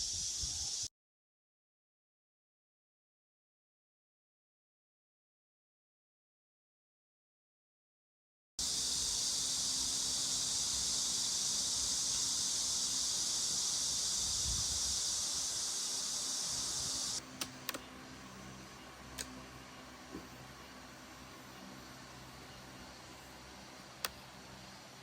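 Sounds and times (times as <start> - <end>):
high-pitched hiss: 0.0 - 0.9, 8.6 - 17.2, 18.2 - 25.0.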